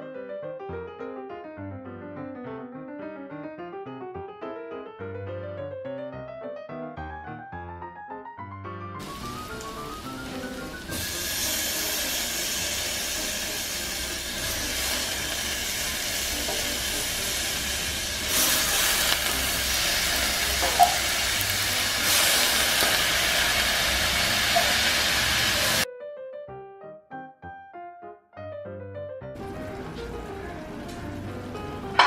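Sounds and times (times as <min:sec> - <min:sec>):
pressure cooker hissing steam: 0:09.0 - 0:25.9.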